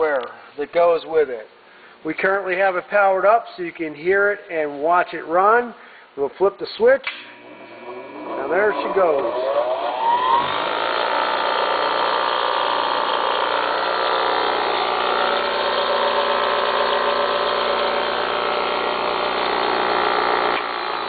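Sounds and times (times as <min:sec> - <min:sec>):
bench grinder whining: 0:07.3 - 0:21.0.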